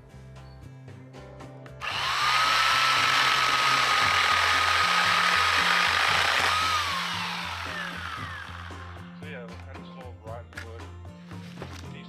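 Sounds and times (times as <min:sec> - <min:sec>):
chainsaw cutting rotten wood: 0:01.8 - 0:08.9
electric chainsaw whining: 0:01.8 - 0:09.2.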